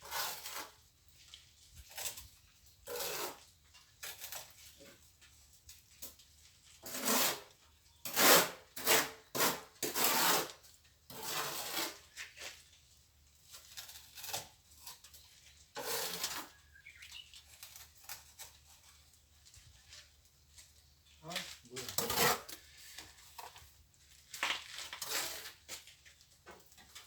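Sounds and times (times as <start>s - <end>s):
trowel scraping mortar: 0.0s - 5.0s, 6.7s - 12.7s, 13.4s - 19.2s, 21.8s - 26.0s.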